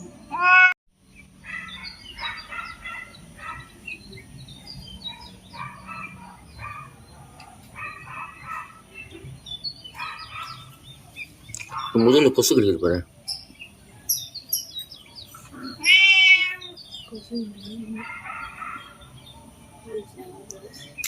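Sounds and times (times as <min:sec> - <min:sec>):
harsh bird chattering: 0:15.3 - 0:19.1.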